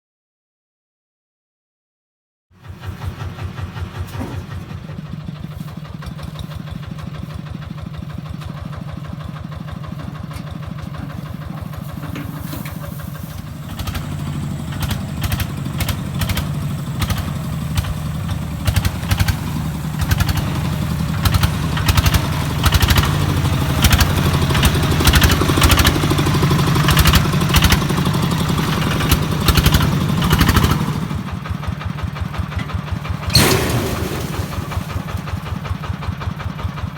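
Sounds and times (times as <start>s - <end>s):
engine chugging: 2.5s - 36.9s
sharp knocks and clatter: 2.8s - 7.3s, 8.4s - 27.8s, 32.1s - 36.9s
sharp bang: 33.3s - 35.5s.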